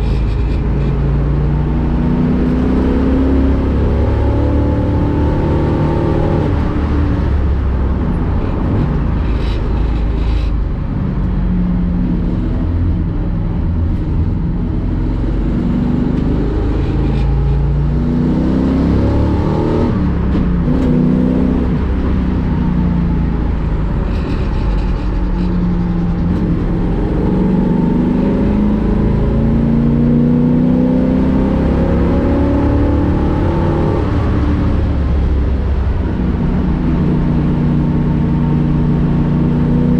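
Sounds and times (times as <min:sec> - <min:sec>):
race car engine revving: 0:13.8 - 0:39.9.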